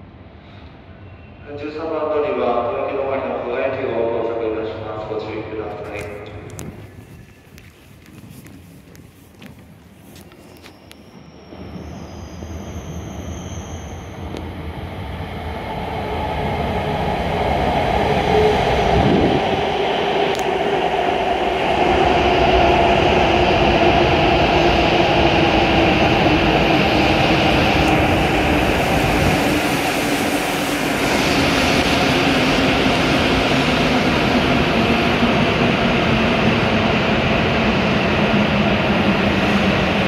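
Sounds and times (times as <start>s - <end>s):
train rumble: 13.5s - 40.0s.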